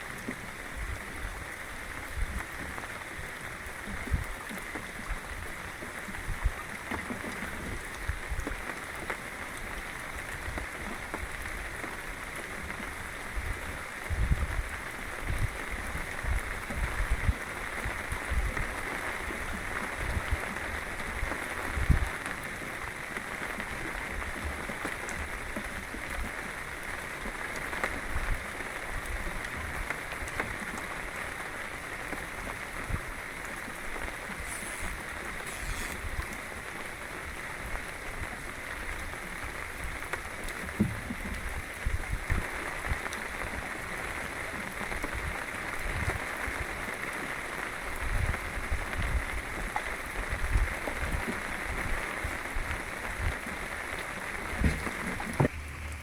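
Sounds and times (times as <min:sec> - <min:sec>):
wind buffeting microphone: 0:13.4 - 0:18.8
rushing water hiss: 0:32.6 - 0:42.9.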